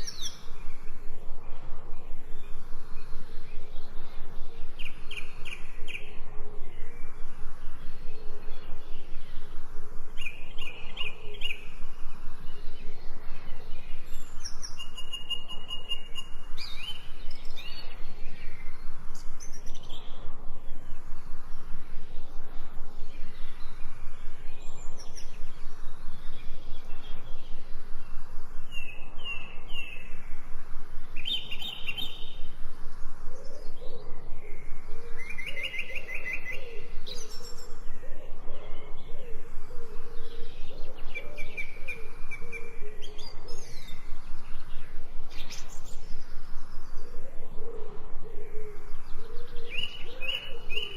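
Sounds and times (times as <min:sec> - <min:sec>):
lower bird calls: 0:00.0 - 0:50.9
songbirds chirping: 0:00.0 - 0:50.9.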